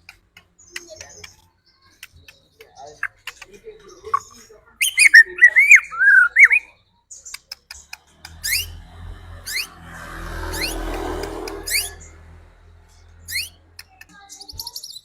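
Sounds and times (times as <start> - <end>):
bird singing whistled notes: 3.9 - 8.8, 9.4 - 10.9, 13.2 - 15.0
low hum: 8.1 - 13.8.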